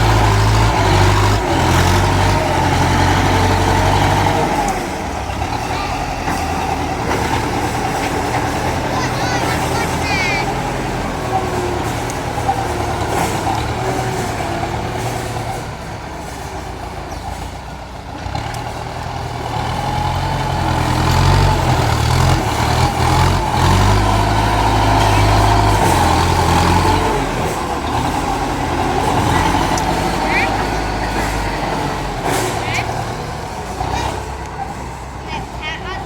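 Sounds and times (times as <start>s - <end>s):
heavy diesel engine droning: 0.0s - 36.0s.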